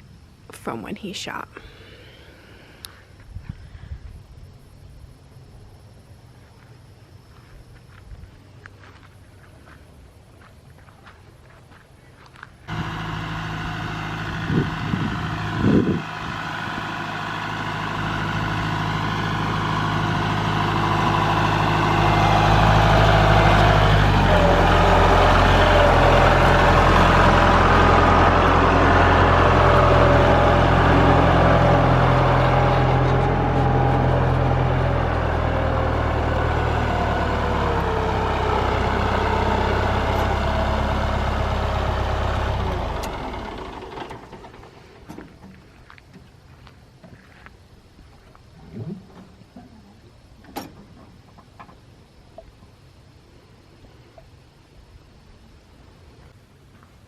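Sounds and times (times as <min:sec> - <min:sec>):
vehicle engine running: 0:12.3 - 0:47.5.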